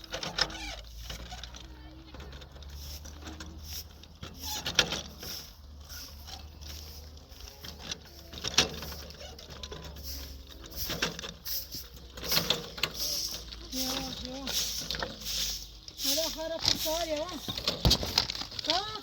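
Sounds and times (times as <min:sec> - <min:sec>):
sharp knocks and clatter: 0:16.1 - 0:19.0.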